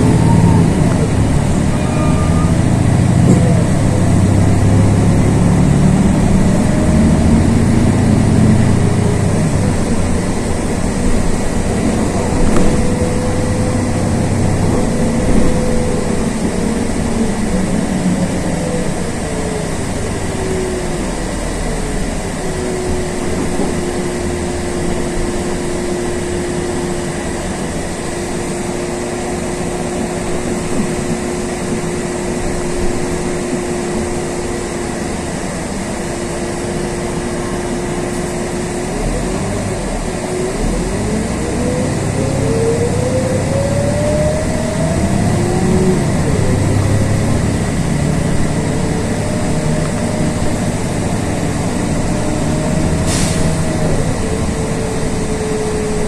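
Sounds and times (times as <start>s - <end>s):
bus drivetrain rumble and whine: 0.0s - 56.0s.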